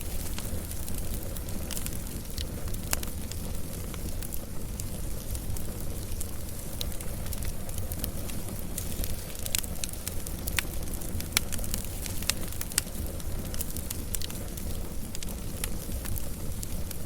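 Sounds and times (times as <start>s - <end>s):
low rumble of flame: 0.0s - 17.0s
wood fire crackling and popping: 0.0s - 17.0s.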